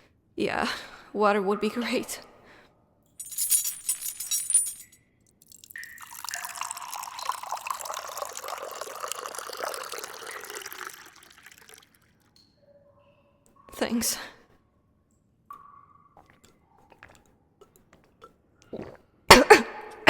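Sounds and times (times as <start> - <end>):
glass clinking: 3.2 - 11.8
water pouring into glass: 5.4 - 12.3.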